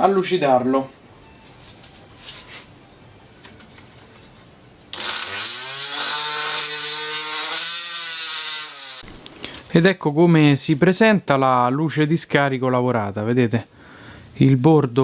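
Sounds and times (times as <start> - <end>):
rotary tool sanding metal: 5.0 - 9.1.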